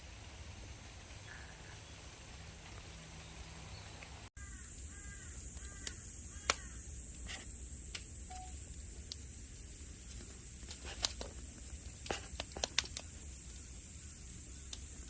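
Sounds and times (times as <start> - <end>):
bird calling: 1.2 - 2.1, 3.7 - 6.9
sharp clicks: 5.6 - 6.7.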